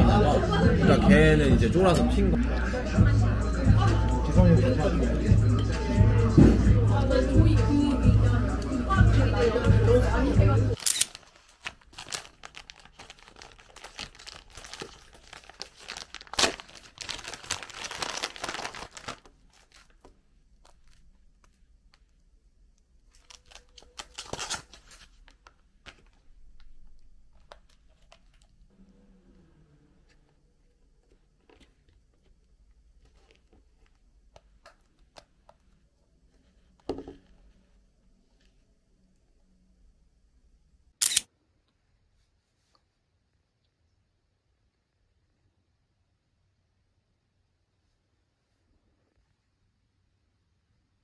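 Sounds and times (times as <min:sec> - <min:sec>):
wrapping material crinkling: 0:10.8 - 0:28.7.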